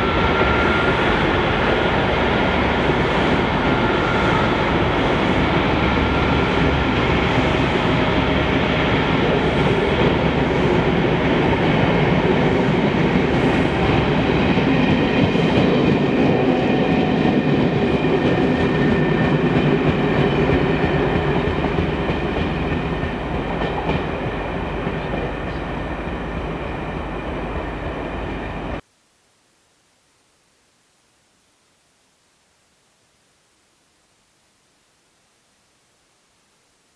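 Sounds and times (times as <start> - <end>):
diesel locomotive: 0.0 - 28.8
train wheels clicking over rail joints: 17.4 - 28.4.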